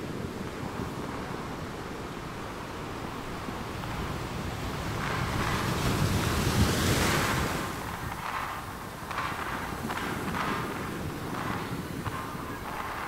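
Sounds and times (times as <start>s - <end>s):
ocean surf washing on beach: 0.0s - 13.0s
wind rumbling on microphone: 0.0s - 13.0s.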